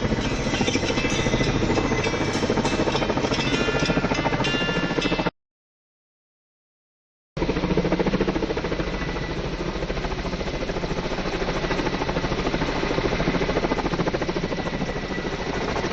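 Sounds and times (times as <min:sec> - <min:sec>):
engine running with fast pulse: 0:00.0 - 0:04.4.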